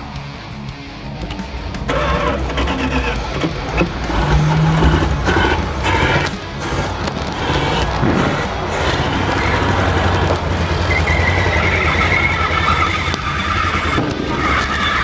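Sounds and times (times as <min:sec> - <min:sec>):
engines rumbling: 0:00.0 - 0:15.0
high steady whine: 0:00.0 - 0:15.0.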